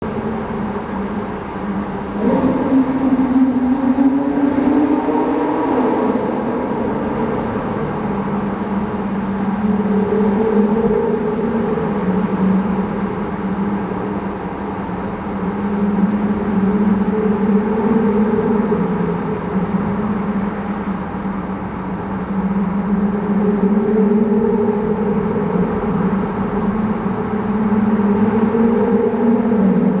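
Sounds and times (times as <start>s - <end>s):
sports car engine and exhaust: 0.0s - 30.0s.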